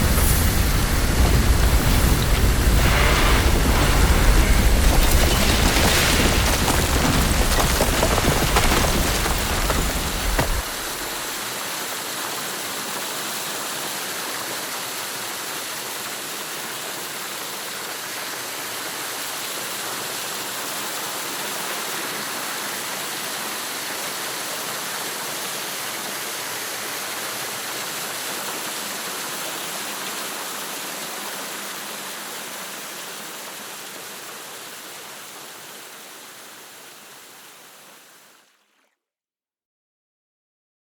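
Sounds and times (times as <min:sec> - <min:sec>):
steady rushing hiss: 0:00.0 - 0:04.9
deep rumble: 0:00.0 - 0:05.6.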